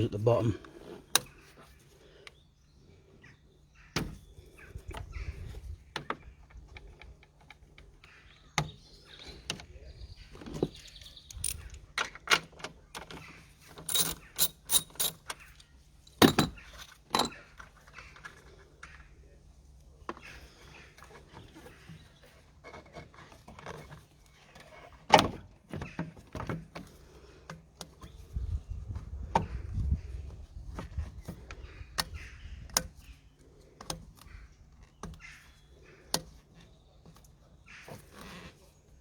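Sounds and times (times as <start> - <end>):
hand tools clicking and knocking: 10.4 - 18.4.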